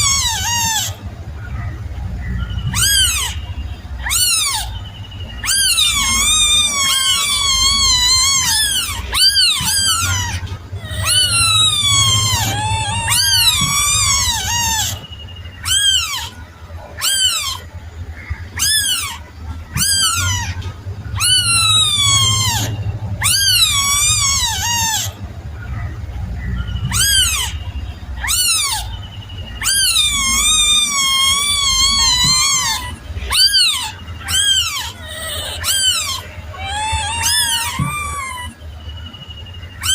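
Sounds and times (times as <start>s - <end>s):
kitten meowing: 0.0s - 1.0s, 5.4s - 17.7s, 19.8s - 25.2s, 26.8s - 27.6s, 28.2s - 29.0s, 29.6s - 38.6s.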